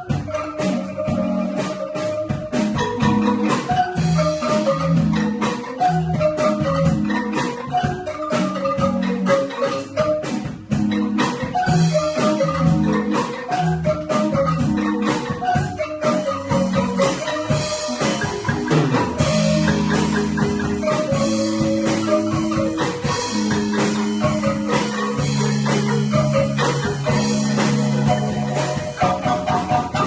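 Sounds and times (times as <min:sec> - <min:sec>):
bamboo band playing pop: 0:00.0 - 0:30.0
percussion beat: 0:00.0 - 0:30.0.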